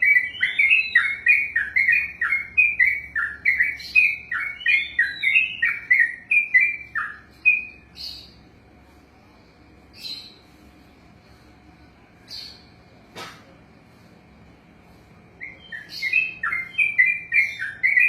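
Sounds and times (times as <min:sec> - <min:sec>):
bird singing whistled notes: 0:00.0 - 0:08.4, 0:09.9 - 0:10.4, 0:15.4 - 0:18.0.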